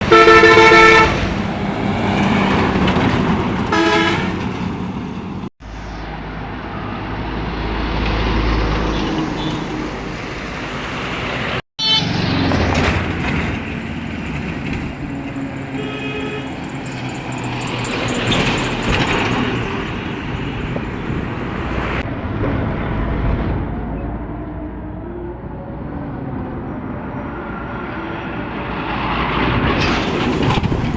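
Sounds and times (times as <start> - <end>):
truck horn blasts: 0.0 - 1.2, 3.7 - 4.4, 11.8 - 12.2, 15.7 - 16.6
diesel truck engines passing: 0.0 - 30.9.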